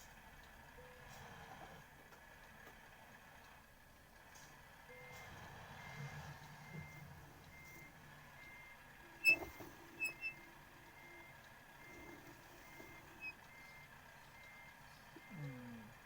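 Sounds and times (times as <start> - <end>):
low engine rumble: 0.0 - 16.0
reversing alarm beeping: 4.9 - 15.6.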